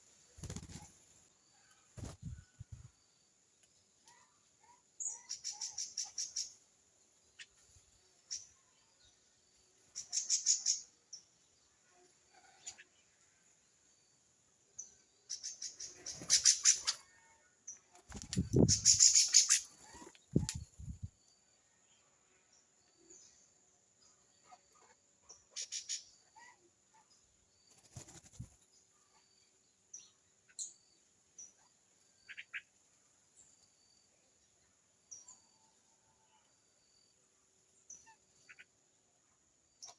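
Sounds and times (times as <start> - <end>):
small birds chattering: 4.0 - 13.2, 14.8 - 21.2, 23.1 - 32.8, 37.8 - 38.8.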